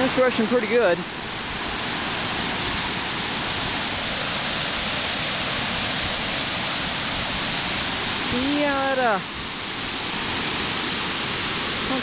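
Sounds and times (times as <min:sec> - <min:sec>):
water rushing over spillway: 0:00.0 - 0:12.0.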